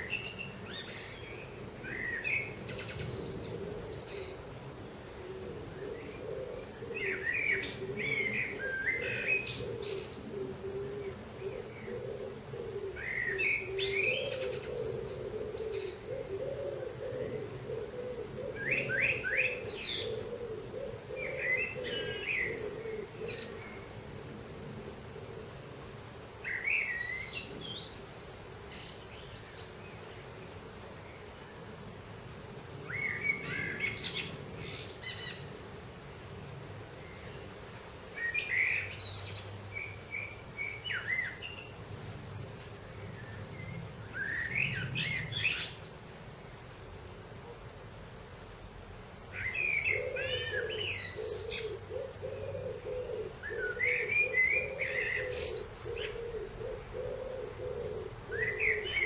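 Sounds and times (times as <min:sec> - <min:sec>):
dove cooing: 0:00.0 - 0:25.9, 0:49.4 - 0:59.0
songbirds chirping: 0:00.0 - 0:59.0.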